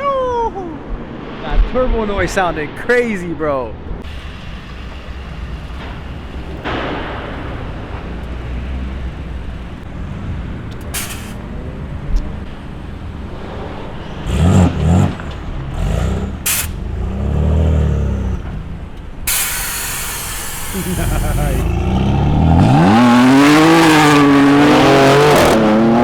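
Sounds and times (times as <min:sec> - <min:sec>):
car engines rumbling: 0:00.0 - 0:26.0
engine revs: 0:04.1 - 0:26.0
short sharp hisses: 0:10.9 - 0:11.4, 0:16.4 - 0:16.8, 0:19.3 - 0:21.7.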